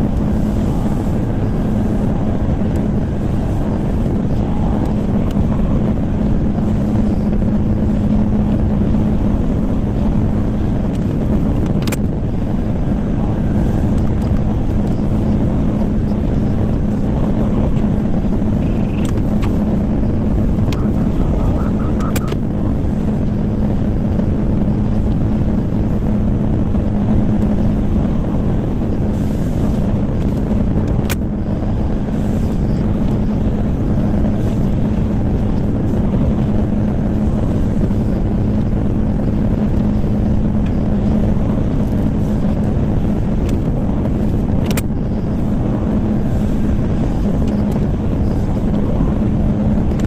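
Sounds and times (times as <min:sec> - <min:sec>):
diesel engine running: 0:00.0 - 0:50.0
sharp clicks: 0:10.9 - 0:12.1, 0:18.6 - 0:19.6, 0:21.9 - 0:22.4, 0:44.6 - 0:44.9.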